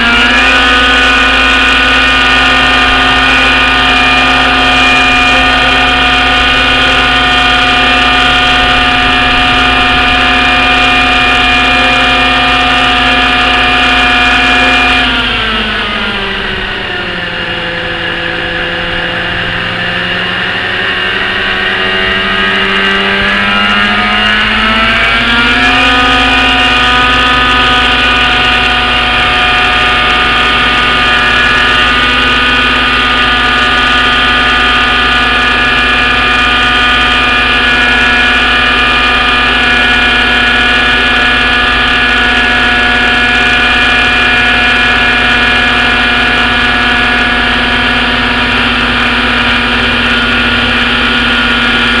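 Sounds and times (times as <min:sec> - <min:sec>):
model helicopter engine buzzing: 0:00.0 - 0:52.0.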